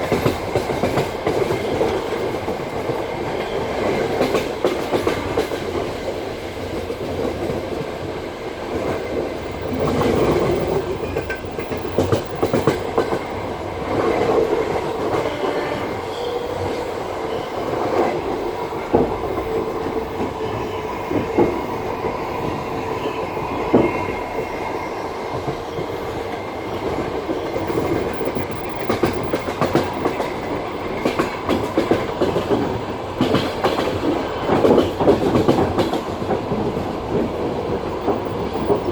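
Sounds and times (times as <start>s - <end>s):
clacks over rail joints: 0.0s - 7.9s, 8.7s - 13.3s, 26.8s - 38.9s
train wheels rumbling on rails: 0.0s - 38.9s.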